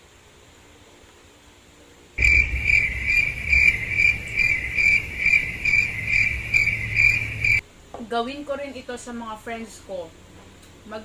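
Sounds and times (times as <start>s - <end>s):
cricket chirping: 2.2s - 7.6s.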